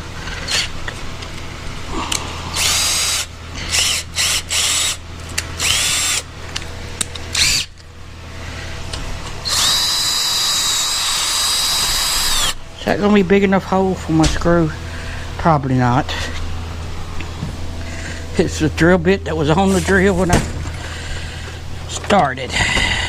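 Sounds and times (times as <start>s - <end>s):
electric drill revving: 2.5s - 5.0s, 5.6s - 6.3s, 7.3s - 7.7s, 9.4s - 12.6s.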